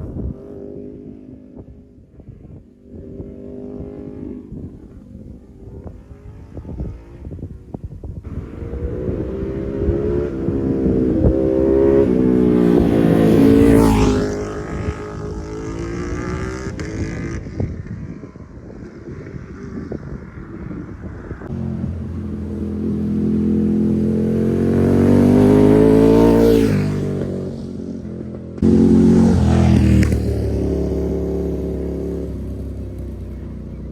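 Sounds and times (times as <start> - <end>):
motorcycle passing by: 0.0 - 33.9.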